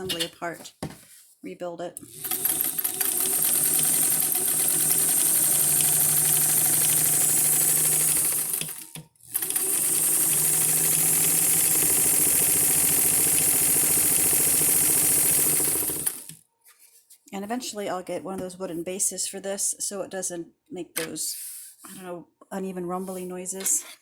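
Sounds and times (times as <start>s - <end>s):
sewing machine stitching: 2.0s - 16.4s.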